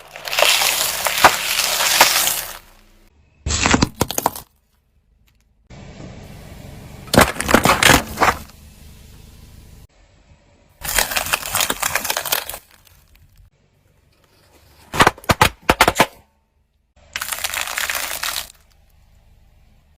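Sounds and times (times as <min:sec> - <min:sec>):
brittle objects crunching: 0:00.0 - 0:02.8, 0:03.5 - 0:04.7, 0:10.8 - 0:13.5, 0:17.2 - 0:18.8.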